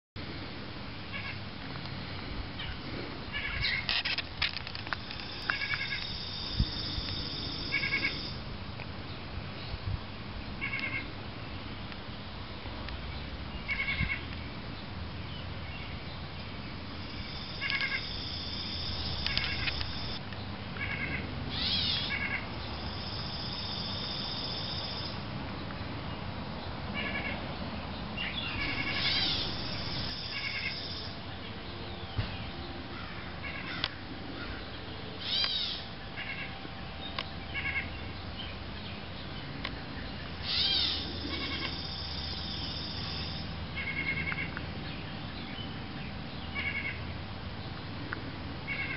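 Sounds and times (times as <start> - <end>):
steady background noise: 0.2 - 48.9
birds calling: 1.1 - 8.4, 10.6 - 11.8, 13.1 - 47.8, 48.6 - 48.9
high steady buzz: 2.0 - 8.6, 16.8 - 20.2, 21.6 - 25.4, 28.6 - 31.4, 40.4 - 43.7.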